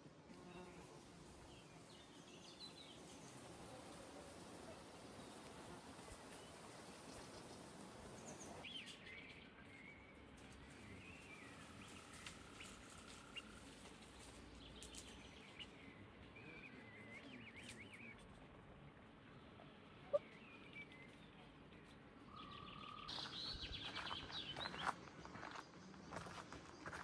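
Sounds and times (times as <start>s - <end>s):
outdoor background hiss: 0.0s - 9.4s
small birds chirping: 1.4s - 18.4s, 19.4s - 27.0s.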